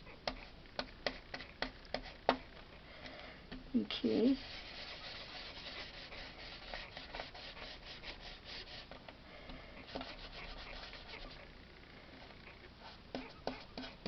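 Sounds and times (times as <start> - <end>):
ink blending tool scratching cardstock: 4.4 - 8.9, 9.8 - 11.5, 13.1 - 14.0.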